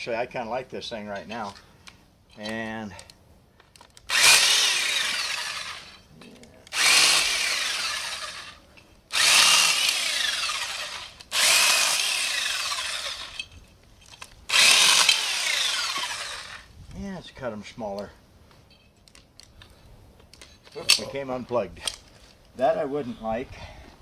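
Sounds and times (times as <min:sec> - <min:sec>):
electric lopper chainsaw whining: 0:04.1 - 0:06.0, 0:06.7 - 0:13.5, 0:14.5 - 0:16.7.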